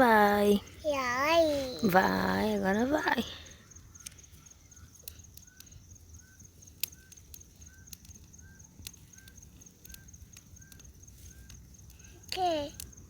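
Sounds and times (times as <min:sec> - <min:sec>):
cricket trill: 0:00.0 - 0:13.0
wood cracking in bonfire: 0:03.9 - 0:13.0.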